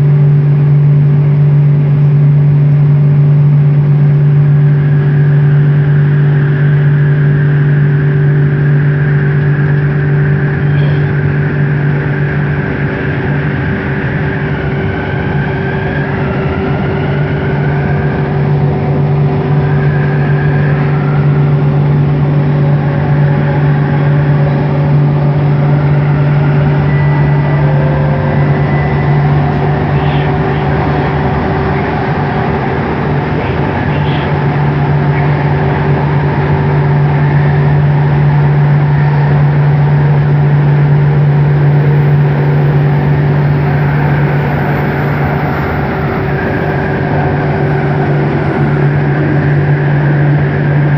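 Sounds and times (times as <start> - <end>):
train motor hum: 0.0 - 50.9
wheels rumbling on rail: 0.0 - 50.9.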